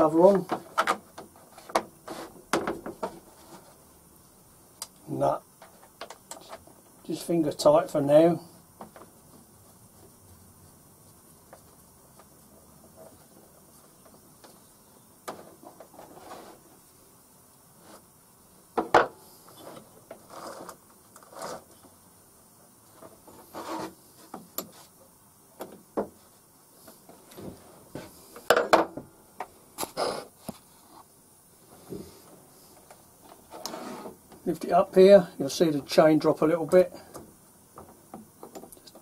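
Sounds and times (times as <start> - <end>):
metal rubbing scrapes: 23.3 - 24.0, 33.4 - 34.2.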